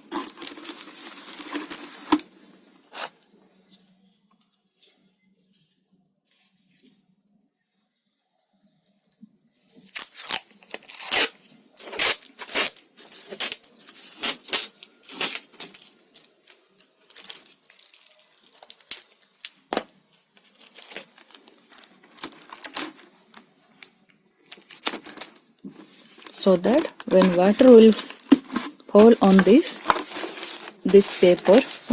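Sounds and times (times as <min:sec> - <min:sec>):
paper crinkling: 0:00.0 - 0:02.2, 0:09.8 - 0:19.5, 0:20.4 - 0:31.9.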